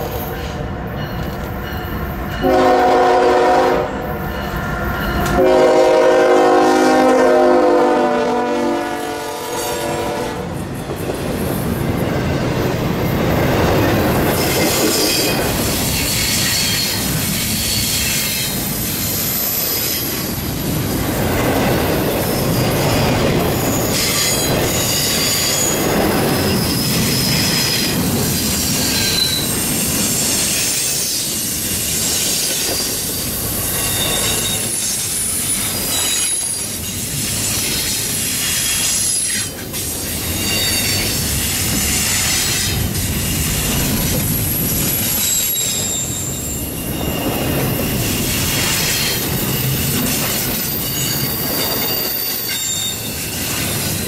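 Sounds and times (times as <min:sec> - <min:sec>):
freight train wheels rumbling: 0:00.0 - 0:54.0
high-pitched wheel squeals: 0:28.7 - 0:32.9, 0:33.7 - 0:39.5, 0:40.2 - 0:41.2, 0:41.8 - 0:54.0.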